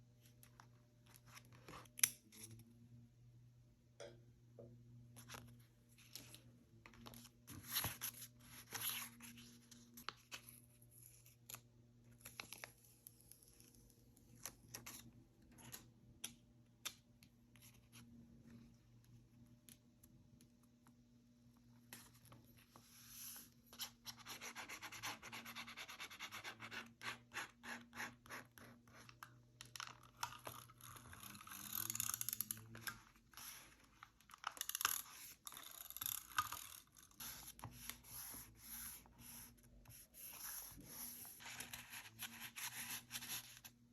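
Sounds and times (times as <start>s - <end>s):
paper rubbing and scraping: 37.2s - 43.7s.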